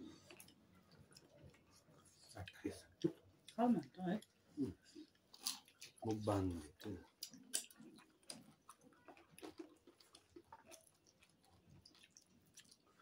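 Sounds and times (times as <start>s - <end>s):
people chewing: 0.0s - 13.0s
soft mouth clicks and smacks: 7.1s - 13.0s.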